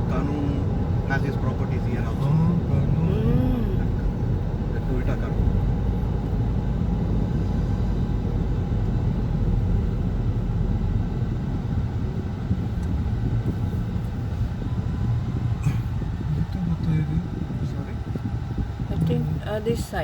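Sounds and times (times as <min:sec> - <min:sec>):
car interior road noise: 0:00.0 - 0:20.0.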